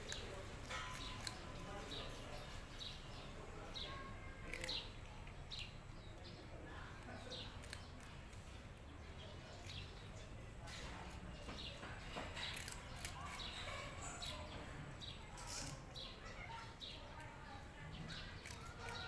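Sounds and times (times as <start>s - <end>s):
small birds chirping: 0.0s - 19.0s
cat chewing crunchy snacks: 12.4s - 13.5s.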